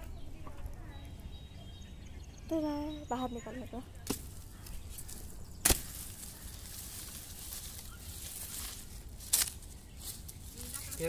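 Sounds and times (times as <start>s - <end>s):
hoe chopping into soil: 4.0s - 4.4s, 5.0s - 6.3s.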